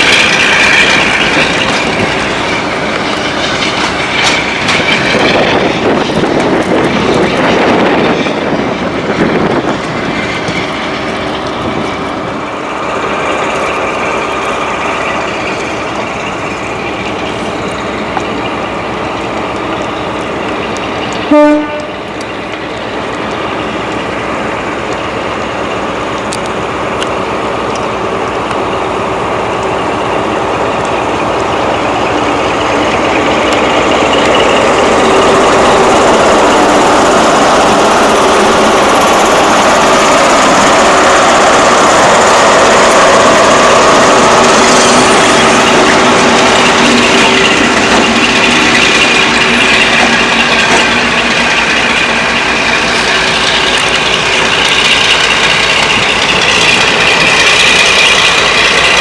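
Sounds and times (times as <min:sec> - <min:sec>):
train running: 0:00.0 - 0:59.0
train horn blast: 0:21.3 - 0:22.0.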